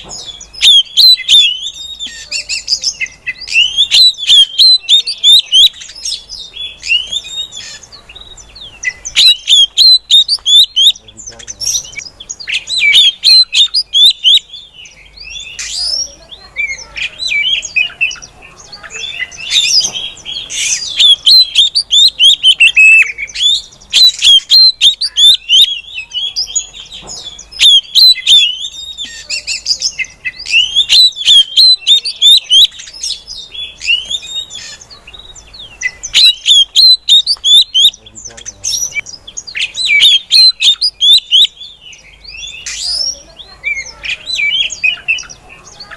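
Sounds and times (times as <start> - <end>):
magpie-robin high chirping: 0.0 - 45.9.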